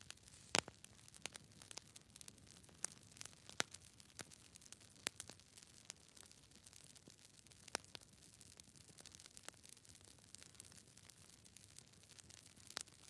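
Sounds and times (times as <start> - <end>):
low hiss: 0.0 - 0.9
faint clicks and crackles: 0.0 - 13.0.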